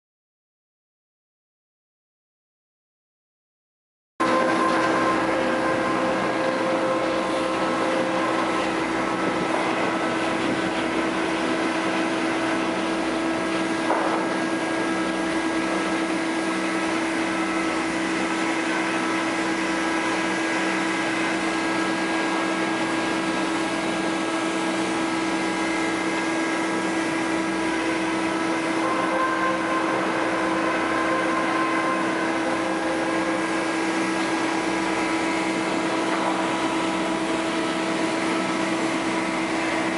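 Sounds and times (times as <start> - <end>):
sawmill machinery whine and rumble: 4.2 - 39.9
short knock: 13.9 - 14.3.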